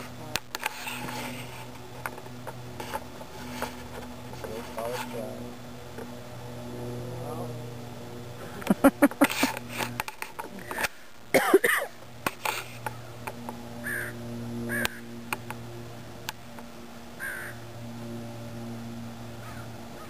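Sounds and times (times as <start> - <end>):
low steady hum: 0.0 - 20.0
bird calling: 13.8 - 15.1, 17.2 - 17.6, 19.4 - 20.0.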